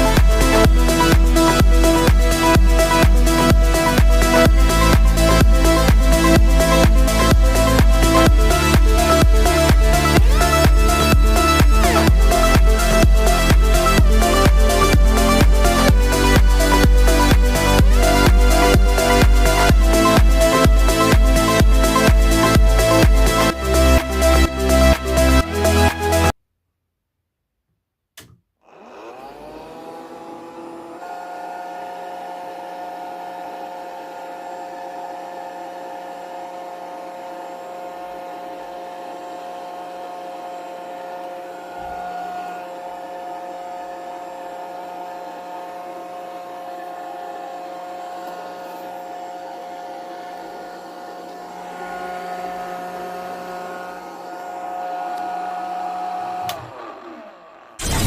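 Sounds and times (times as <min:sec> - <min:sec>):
small motor whining: 0:28.6 - 0:58.0.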